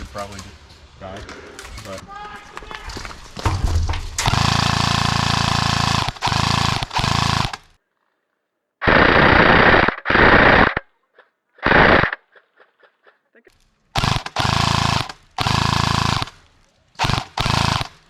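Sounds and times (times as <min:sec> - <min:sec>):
airsoft gun firing bursts: 0:04.2 - 0:07.8, 0:08.8 - 0:10.8, 0:11.6 - 0:13.0, 0:13.9 - 0:18.0.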